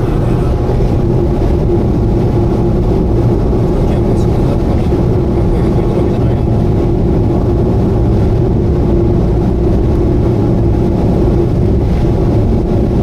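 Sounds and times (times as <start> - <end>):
steady mid-pitched tone: 0.0 - 6.3
car engine and road drone: 0.0 - 13.0.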